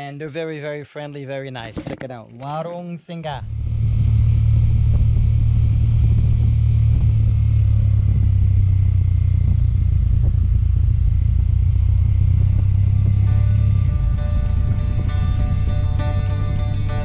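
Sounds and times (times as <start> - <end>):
motorcycle engine rumble: 3.5 - 17.0.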